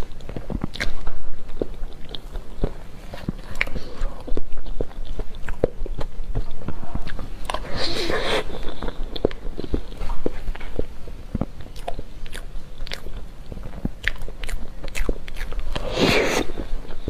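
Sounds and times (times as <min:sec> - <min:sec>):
chewing cake: 0:00.0 - 0:17.0
sticky mouth clicks: 0:00.0 - 0:17.0
airy rush of noise: 0:15.7 - 0:16.8.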